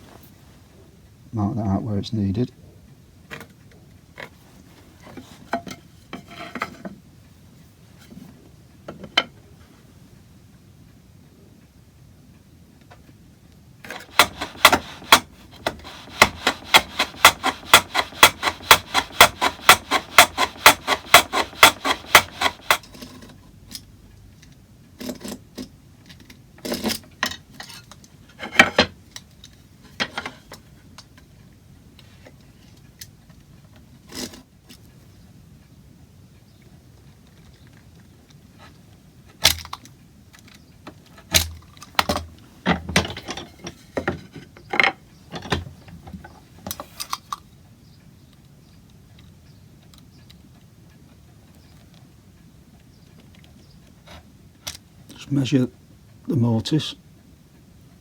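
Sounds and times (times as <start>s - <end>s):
knocks and clicks of tools: 13.9s - 22.9s
hand saw cutting wood: 13.9s - 23.0s.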